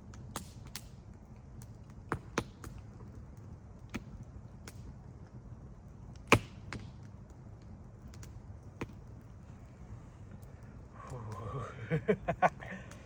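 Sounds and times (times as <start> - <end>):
low steady rumble: 6.9 - 13.0.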